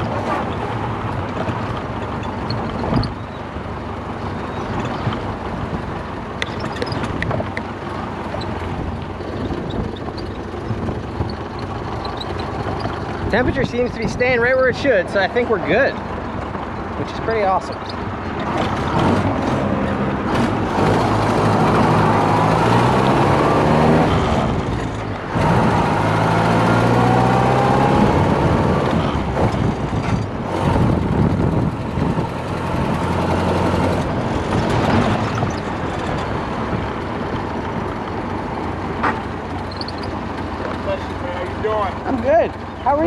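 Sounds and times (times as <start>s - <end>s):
wind and road noise: 0.0s - 43.0s
car engine accelerating: 6.4s - 43.0s.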